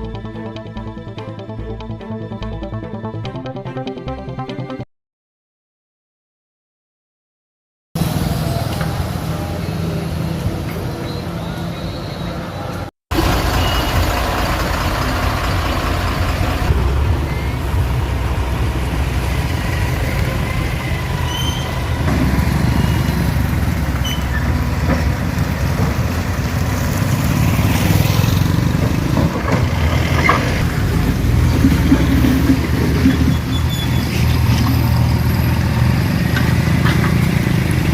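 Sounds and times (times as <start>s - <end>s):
heavy vehicle engine running: 8.0s - 37.9s.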